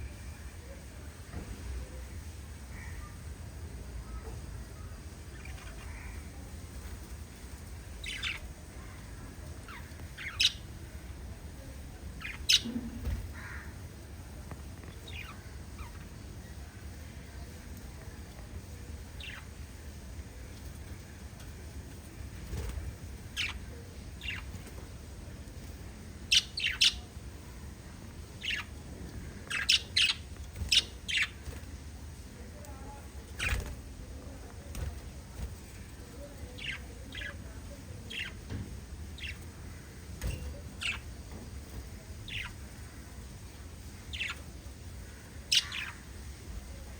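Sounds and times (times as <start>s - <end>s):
low steady hum: 0.0s - 46.9s
parrots chirping: 9.7s - 10.7s, 12.2s - 13.6s, 26.3s - 27.1s, 28.4s - 28.7s, 29.4s - 31.4s, 39.2s - 39.4s, 40.3s - 41.2s, 44.0s - 44.5s, 45.5s - 46.1s.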